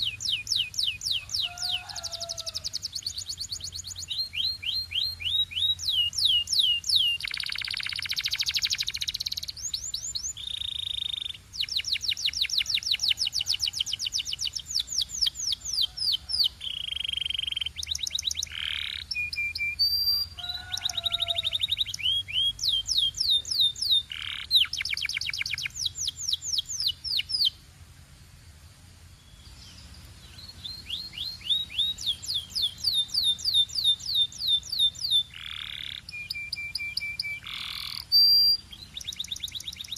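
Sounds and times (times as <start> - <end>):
canary singing trills: 0.0 - 27.6, 29.1 - 39.9.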